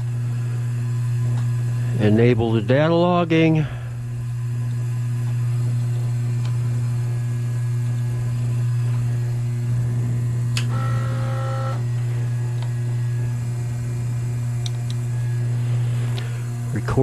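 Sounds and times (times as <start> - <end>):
electrical hum: 0.0 - 17.0
click: 10.5 - 10.7, 14.6 - 15.0.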